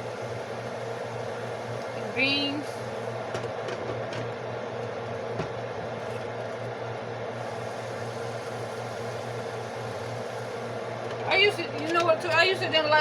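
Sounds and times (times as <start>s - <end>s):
food sizzling in a frying pan: 0.0s - 3.6s, 7.3s - 12.7s
steady low hum: 0.0s - 13.0s.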